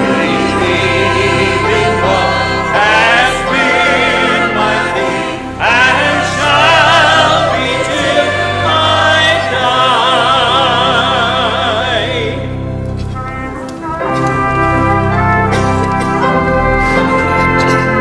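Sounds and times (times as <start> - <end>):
choir singing a hymn: 0.0 - 12.8
instrumental accompaniment: 0.0 - 18.0.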